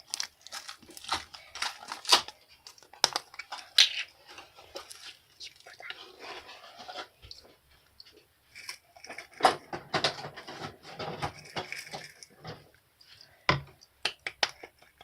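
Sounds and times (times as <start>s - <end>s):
small hard objects clicking: 11.2s - 12.7s, 13.7s - 15.0s.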